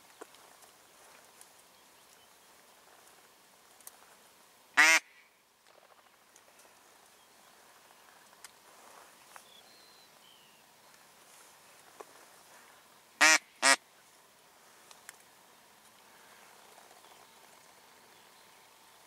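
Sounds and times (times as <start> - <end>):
duck quacking: 4.8 - 5.1, 13.2 - 13.8.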